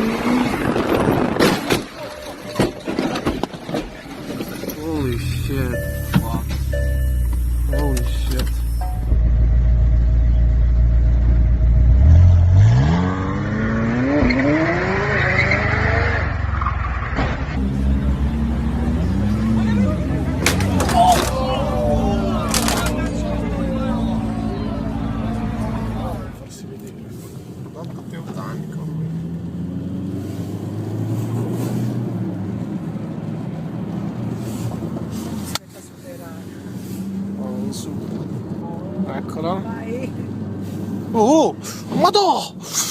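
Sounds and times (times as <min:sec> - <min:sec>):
car engine revving: 0:04.8 - 0:26.5, 0:27.8 - 0:35.5
tyre noise: 0:19.6 - 0:26.4.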